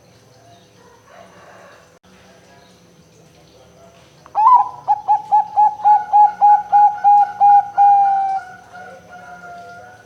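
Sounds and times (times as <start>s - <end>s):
dove cooing: 4.4s - 10.0s.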